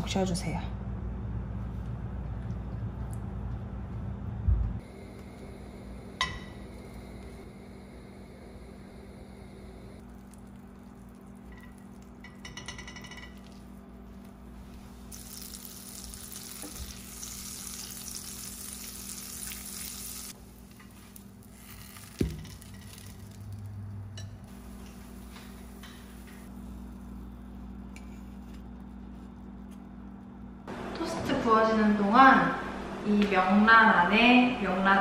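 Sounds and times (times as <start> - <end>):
bread sizzling in butter: 14.8 - 23.7.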